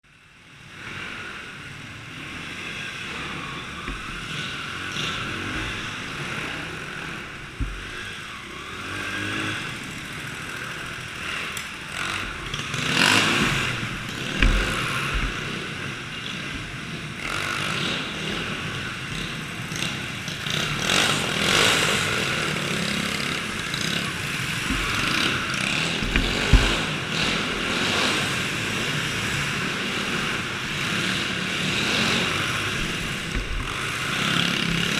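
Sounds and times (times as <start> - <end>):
small engines revving: 0.4 - 34.9
thumps on microphone: 7.4 - 8.1, 13.4 - 15.7, 23.5 - 27.9, 32.7 - 34.0.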